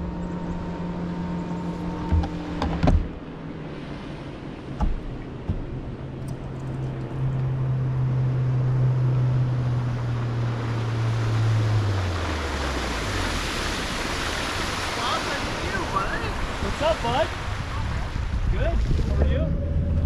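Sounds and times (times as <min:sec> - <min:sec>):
boat motor humming: 0:00.0 - 0:20.0
water lapping: 0:00.0 - 0:20.0
wind: 0:00.0 - 0:20.0
light knocks: 0:02.0 - 0:03.1, 0:04.8 - 0:06.7.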